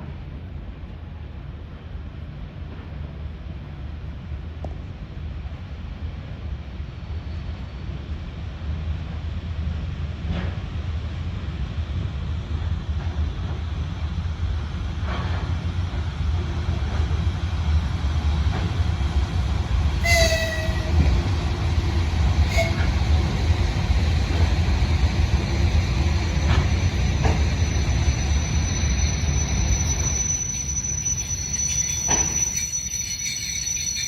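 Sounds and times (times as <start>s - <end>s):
passenger train rumbling past: 0.0s - 34.0s
high wheel squeal: 20.0s - 21.1s, 22.4s - 23.2s, 26.3s - 34.0s.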